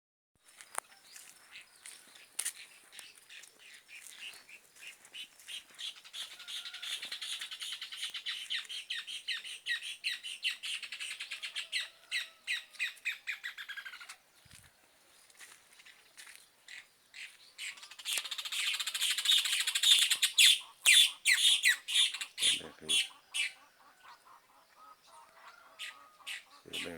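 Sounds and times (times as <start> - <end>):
birds harsh chattering calls: 1.2 - 14.2, 16.7 - 26.9.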